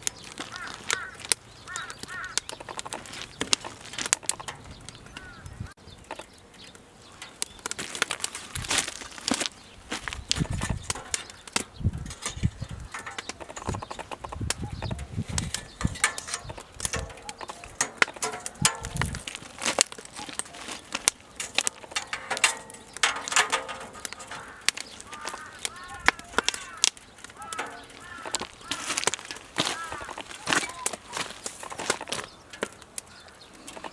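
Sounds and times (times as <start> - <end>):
firewood crackling and popping: 0.0 - 33.9
wind rumble on microphone: 4.5 - 6.1, 9.8 - 17.2, 18.5 - 19.4
short arching calls: 23.8 - 33.9.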